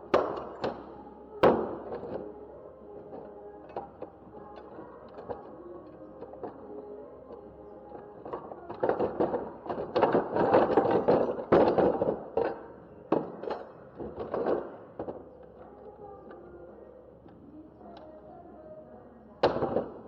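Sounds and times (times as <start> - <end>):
faint background music: 0.0 - 20.0
tools and metal parts clattering: 13.2 - 14.6.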